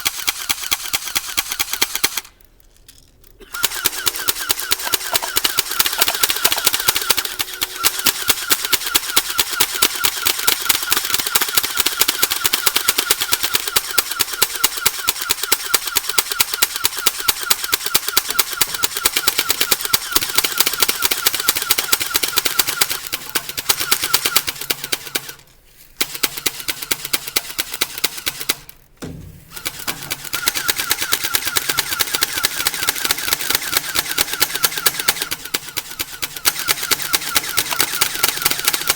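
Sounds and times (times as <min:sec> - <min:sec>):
airsoft guns firing full-auto: 0:00.0 - 0:02.3, 0:03.4 - 0:25.4, 0:26.0 - 0:28.7, 0:29.4 - 0:38.9.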